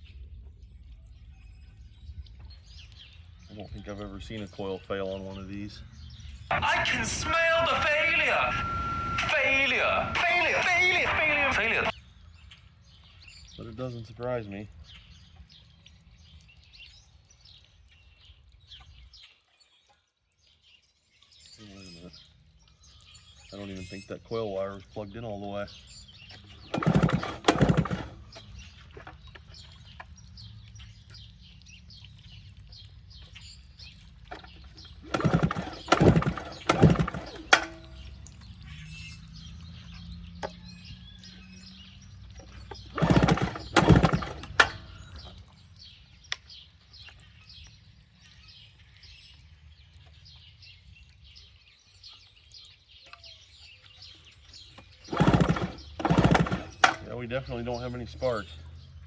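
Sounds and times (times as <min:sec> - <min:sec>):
engine cranking without firing: 0:06.5 - 0:11.9, 0:26.0 - 0:30.2, 0:34.3 - 0:38.6, 0:39.4 - 0:45.5, 0:54.7 - 0:57.9
recoil starter cord pulls: 0:26.3 - 0:29.4, 0:34.3 - 0:38.2, 0:42.3 - 0:45.4, 0:54.8 - 0:57.1.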